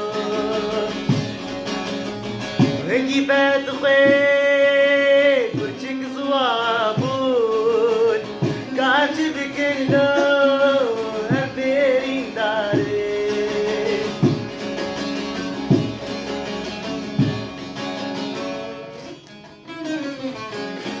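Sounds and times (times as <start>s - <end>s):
person singing: 0.0s - 1.5s, 2.8s - 14.4s
plucked guitar: 0.0s - 21.0s.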